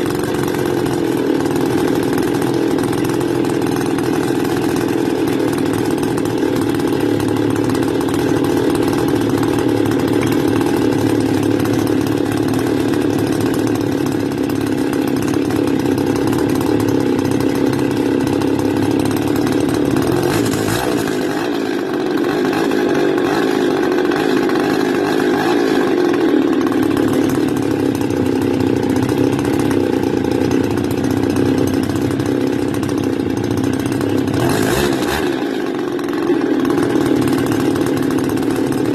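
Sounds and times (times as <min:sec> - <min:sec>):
brush cutter engine running: 0:00.0 - 0:38.9.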